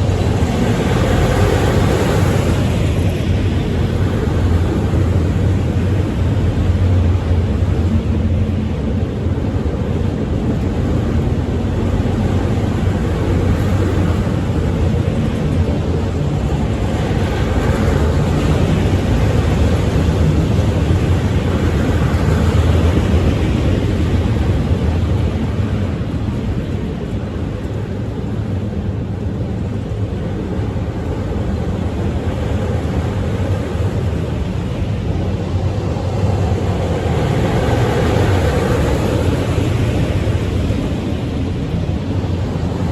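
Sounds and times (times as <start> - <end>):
freight train wheels rumbling: 0.0 - 42.9.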